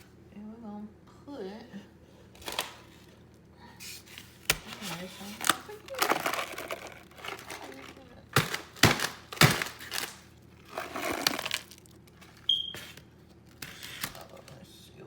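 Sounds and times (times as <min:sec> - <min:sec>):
ice cubes clattering into bowl: 0:05.4 - 0:12.0.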